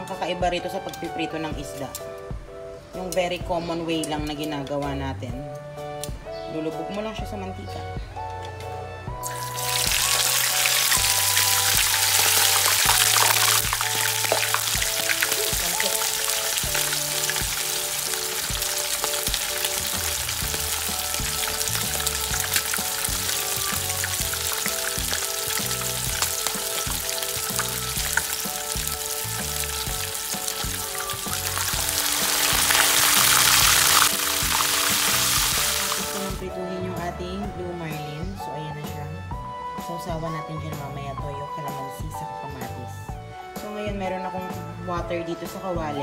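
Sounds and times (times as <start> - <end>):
background music: 0.0 - 46.0
fish sizzling in oil: 9.2 - 36.4.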